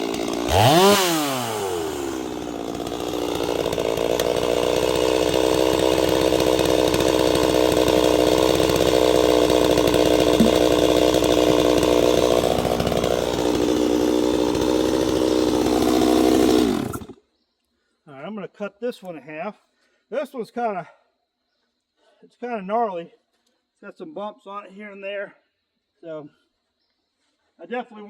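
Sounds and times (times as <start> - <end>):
chainsaw cutting log: 0.0 - 17.2.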